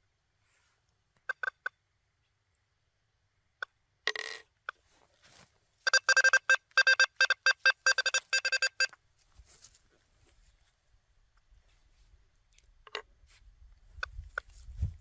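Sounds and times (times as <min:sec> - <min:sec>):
metal detector beeps: 0:05.8 - 0:09.0.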